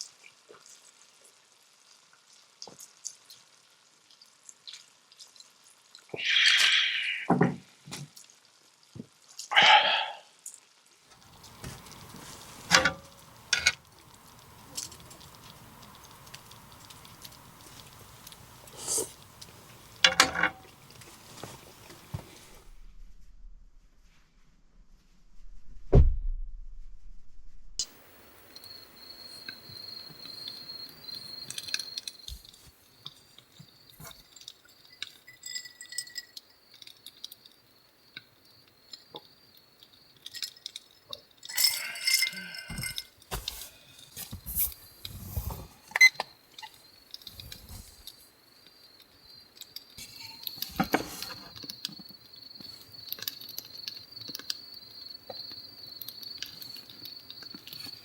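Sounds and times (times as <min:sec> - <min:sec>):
crickets chirping: 0:11.2 - 0:22.6, 0:27.8 - 0:58.0
glass and dishes clinking: 0:20.1 - 0:20.8, 0:34.8 - 0:36.4, 0:41.5 - 0:43.1.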